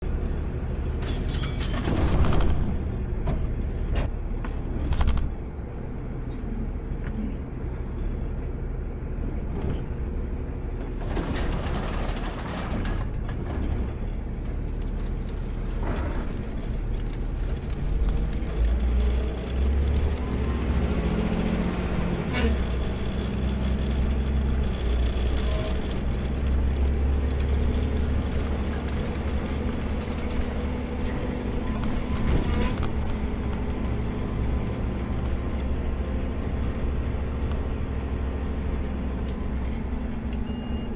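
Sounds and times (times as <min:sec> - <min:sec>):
clunks: 0:00.2 - 0:08.3.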